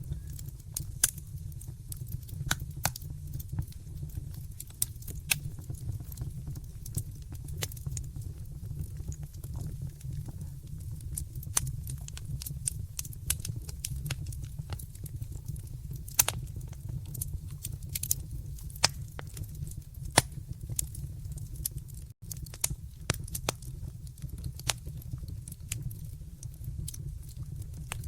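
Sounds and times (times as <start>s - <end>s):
low rumble of flames: 0.0s - 28.0s
wood fire pops and snaps: 0.0s - 28.0s.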